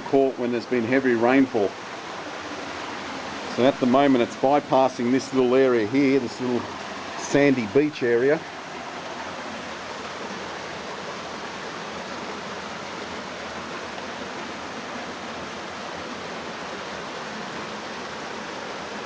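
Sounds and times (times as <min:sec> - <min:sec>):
creek water running over rocks: 0:00.0 - 0:19.0.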